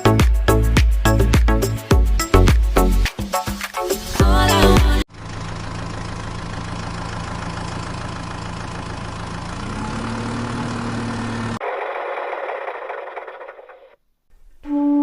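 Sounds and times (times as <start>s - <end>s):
engine running: 4.3s - 14.0s.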